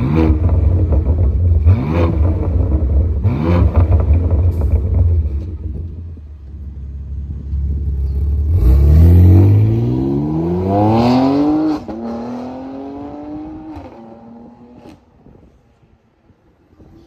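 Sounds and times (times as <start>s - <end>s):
car engine accelerating: 7.2s - 15.0s.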